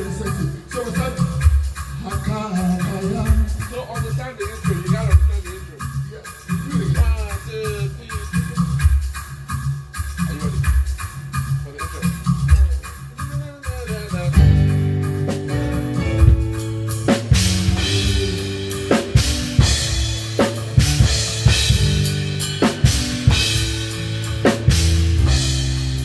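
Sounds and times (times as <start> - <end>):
live band playing: 0.0 - 26.0
cymbal crashes: 15.0 - 26.0.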